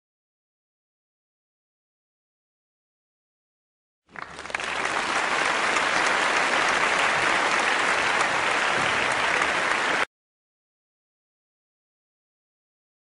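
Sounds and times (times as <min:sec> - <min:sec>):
crowd applause: 0:04.1 - 0:10.1.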